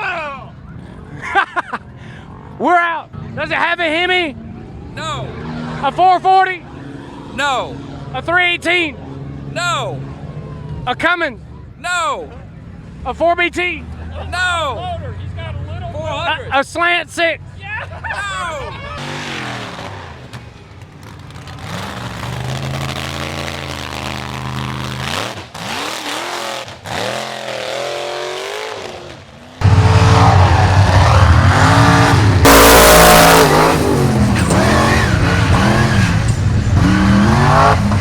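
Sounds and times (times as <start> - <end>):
truck engines revving: 0.0 - 38.0
short loud rushing burst: 29.6 - 35.1.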